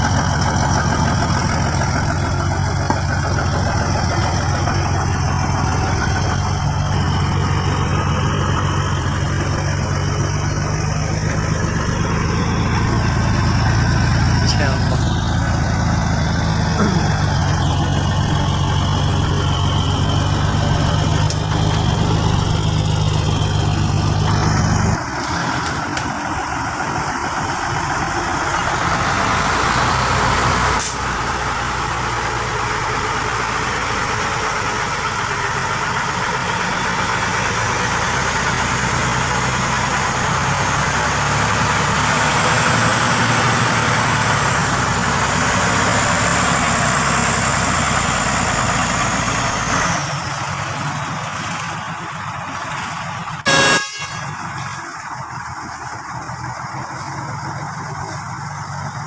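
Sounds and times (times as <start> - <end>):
truck engine low hum: 0.0 - 59.0
lighter engine noise: 28.8 - 31.6.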